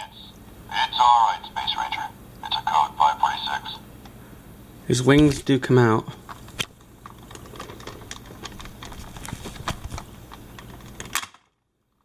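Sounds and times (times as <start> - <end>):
plastic toy clicking and rattling: 7.0 - 11.4.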